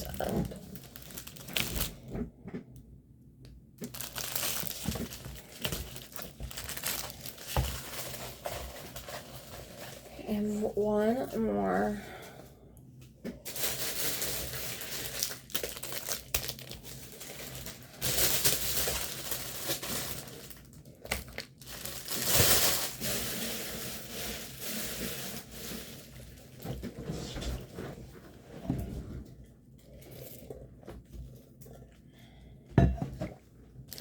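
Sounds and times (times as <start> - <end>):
plastic packaging crinkling: 0.0 - 2.1, 3.8 - 10.1, 13.4 - 26.8.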